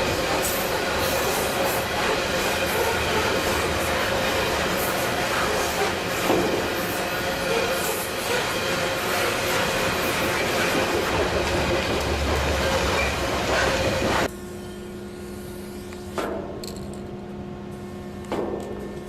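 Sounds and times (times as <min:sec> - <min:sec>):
train rumbling past: 0:00.0 - 0:14.3.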